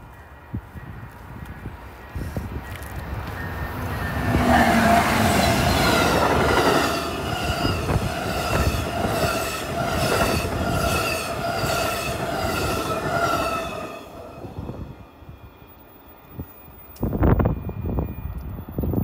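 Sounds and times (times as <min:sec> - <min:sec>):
train wheels rumbling on rail: 0:00.0 - 0:19.0
high ringing tone pulsing: 0:03.2 - 0:06.2.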